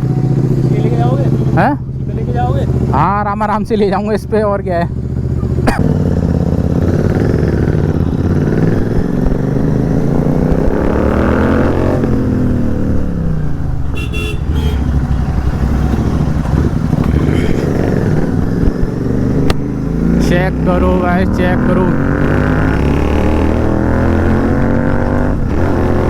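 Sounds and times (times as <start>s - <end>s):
motorcycle engine revving: 0.0s - 26.0s
horn toot: 13.9s - 15.2s.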